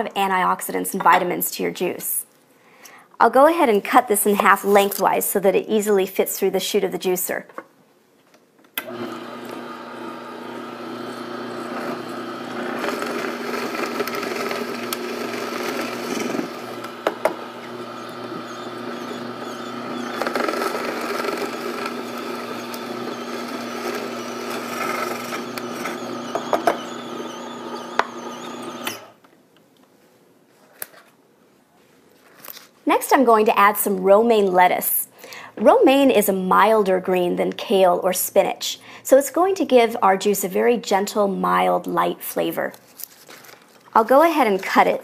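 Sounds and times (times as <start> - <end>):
juicer motor humming: 8.8 - 29.2.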